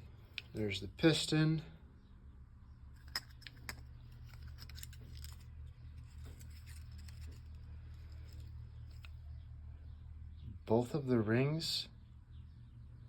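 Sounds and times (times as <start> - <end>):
metal parts clicking: 3.0 - 9.2.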